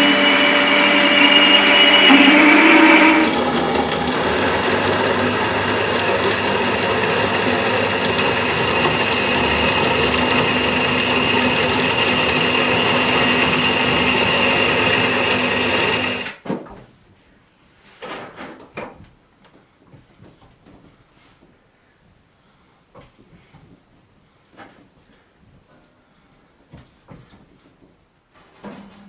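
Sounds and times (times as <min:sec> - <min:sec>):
machine whining and humming: 0:00.0 - 0:16.4.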